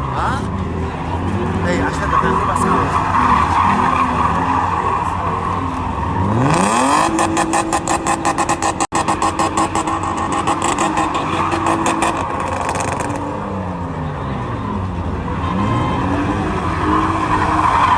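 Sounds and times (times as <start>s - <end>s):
car engine revving: 0.0s - 17.9s
tyres squealing: 1.2s - 13.4s.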